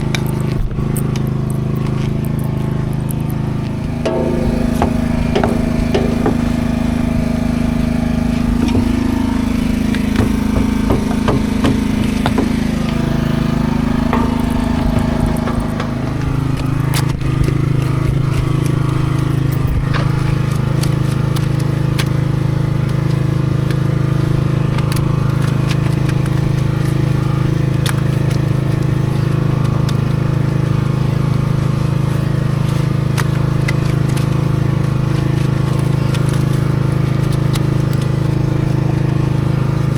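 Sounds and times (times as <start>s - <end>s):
truck diesel engine running: 0.0s - 27.8s.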